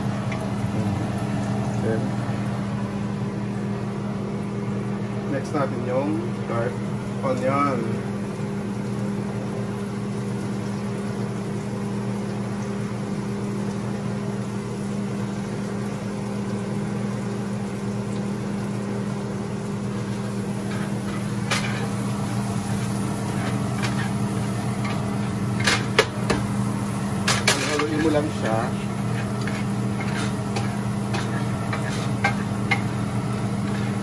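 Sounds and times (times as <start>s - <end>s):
garlic and onion sizzling in a pan: 0.0s - 3.6s, 5.3s - 34.0s
spatula scraping a pan: 22.6s - 26.4s, 27.3s - 34.0s.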